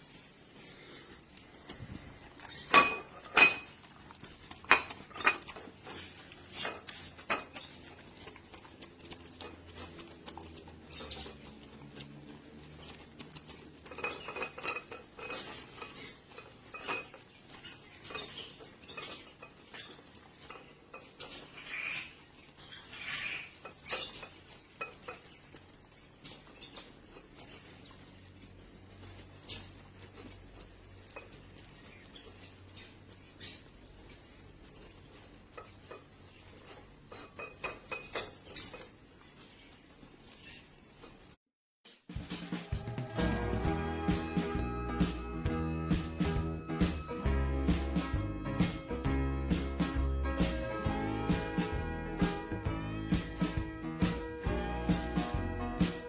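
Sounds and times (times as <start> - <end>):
cutlery scraping: 2.4 - 11.5, 12.7 - 22.0, 35.5 - 38.9
dish and cutlery clinking: 2.5 - 3.9, 4.5 - 6.0, 6.6 - 8.0, 12.8 - 22.0, 23.0 - 25.4, 35.5 - 38.9.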